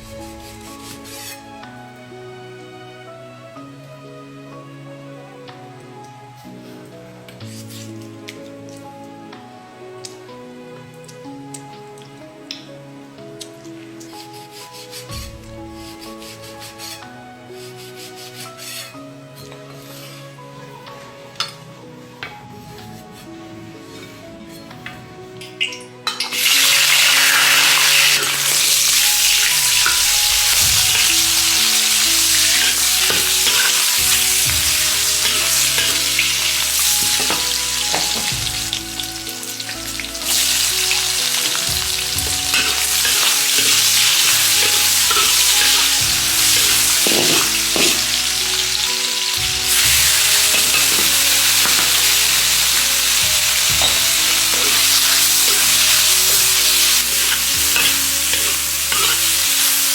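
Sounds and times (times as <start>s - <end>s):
spatula scraping wok: 0.0s - 1.5s, 7.5s - 8.1s, 14.1s - 19.1s, 26.1s - 59.9s
food sizzling in oil: 25.6s - 59.9s.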